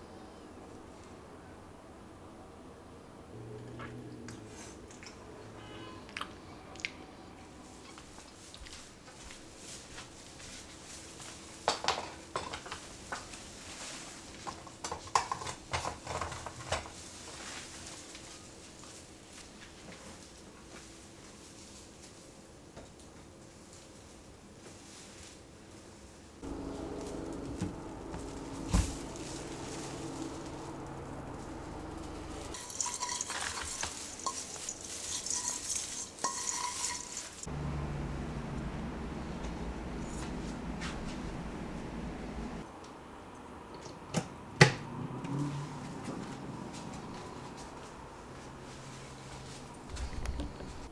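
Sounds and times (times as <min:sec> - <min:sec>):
low hum: 0:26.4 - 0:32.6, 0:37.5 - 0:42.6
dishes clinking and knocking: 0:31.5 - 0:37.2.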